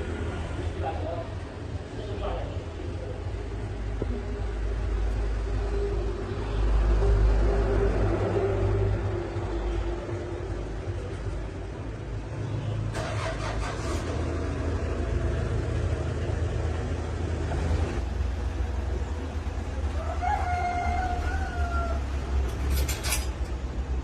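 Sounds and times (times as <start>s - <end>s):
low engine-like rumble: 0.0s - 24.0s
rooster crowing: 19.8s - 22.7s.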